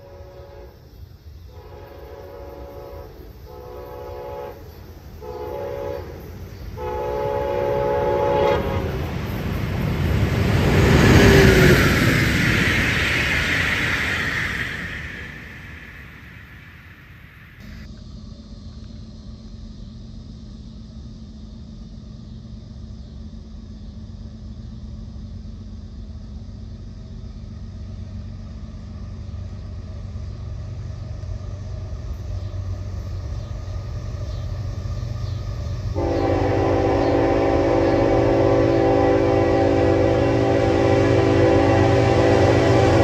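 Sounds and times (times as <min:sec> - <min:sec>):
train air horn chord: 0:00.0 - 0:00.9, 0:01.5 - 0:09.1, 0:36.0 - 0:43.0
diesel locomotive rumble: 0:00.0 - 0:43.0.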